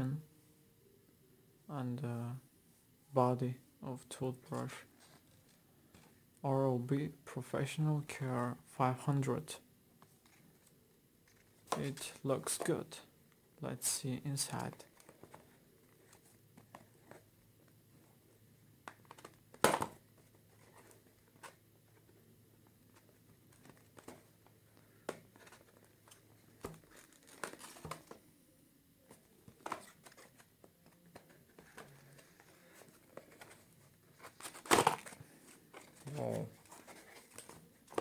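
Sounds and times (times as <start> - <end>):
packaging crinkling: 22.9 - 28.2, 29.4 - 38.0.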